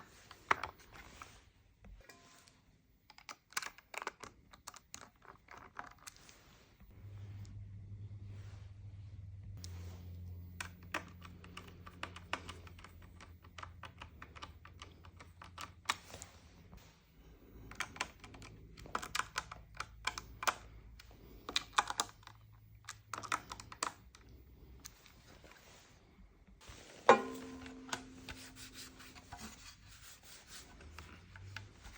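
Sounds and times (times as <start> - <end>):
low steady hum: 6.8 - 17.6, 24.1 - 31.9.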